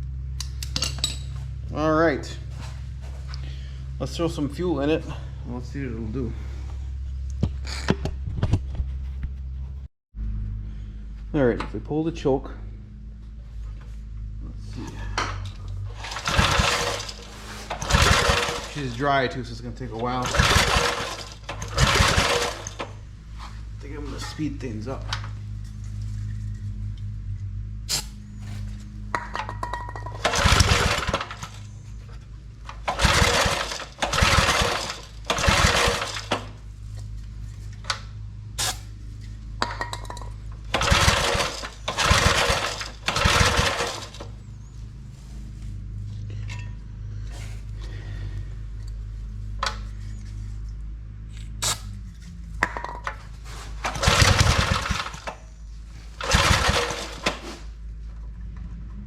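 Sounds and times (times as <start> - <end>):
steady low hum: 0.0 - 56.3
pull-cord starter pulls: 15.2 - 19.0, 20.0 - 23.0, 29.2 - 31.7, 32.7 - 36.6, 40.1 - 44.4, 53.8 - 55.5, 56.2 - 57.7.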